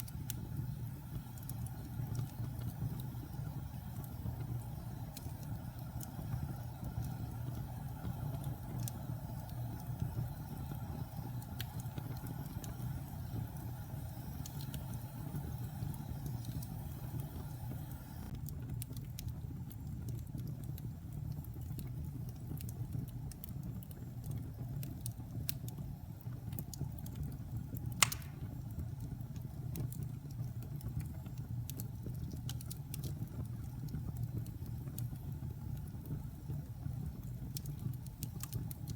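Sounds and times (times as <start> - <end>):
fire crackling: 0.0 - 38.9
low rumble of flames: 0.0 - 38.9
loud pop of fire: 28.0 - 28.6.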